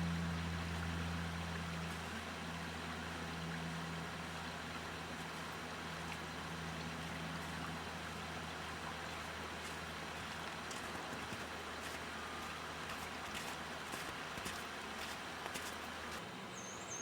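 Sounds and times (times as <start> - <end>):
low steady hum: 0.0 - 16.5
stream flowing: 0.0 - 16.5.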